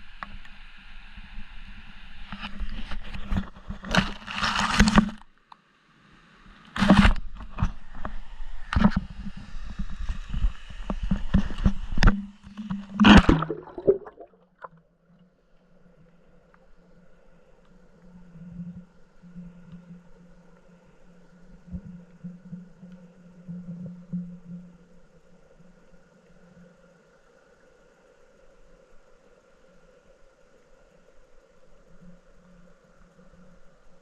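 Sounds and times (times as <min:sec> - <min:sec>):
knocks and scrapes on camera: 0:02.4 - 0:05.2, 0:06.8 - 0:13.5
water sloshing and gurgling: 0:11.1 - 0:14.8.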